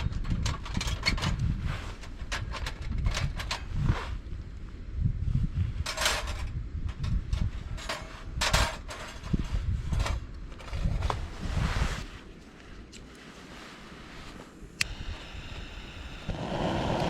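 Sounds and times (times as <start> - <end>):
wind buffeting microphone: 0.0 - 12.2, 14.7 - 17.0
microphone handling noise: 14.2 - 17.0.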